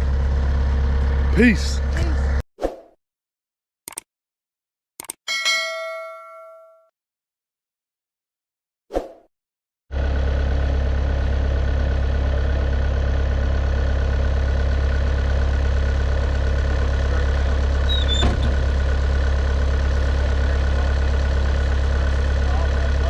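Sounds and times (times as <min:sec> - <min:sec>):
diesel engine idling: 0:00.0 - 0:02.4, 0:09.9 - 0:23.0.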